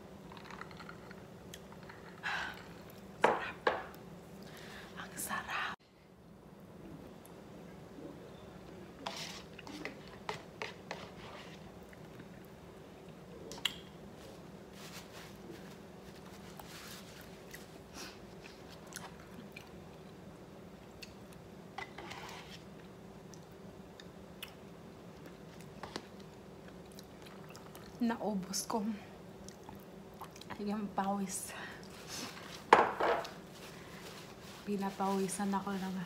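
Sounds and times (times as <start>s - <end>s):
faint steady hum: 0.0s - 36.0s
person chewing noodles: 23.3s - 28.0s.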